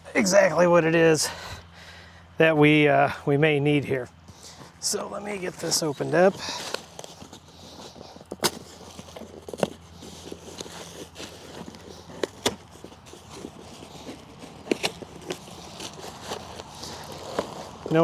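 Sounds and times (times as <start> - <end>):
cardboard box being opened: 4.3 - 18.0.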